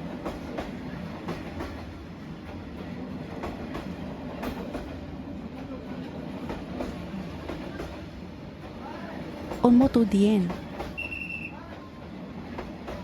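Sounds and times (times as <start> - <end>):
train rumbling past: 0.0 - 13.0
wheels clacking on rail joints: 0.1 - 5.1.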